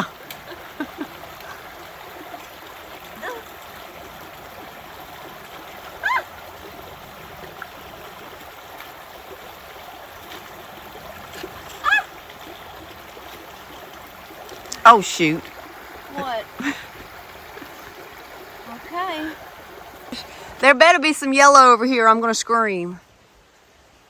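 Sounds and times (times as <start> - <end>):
river water rushing over rocks: 0.0 - 20.6.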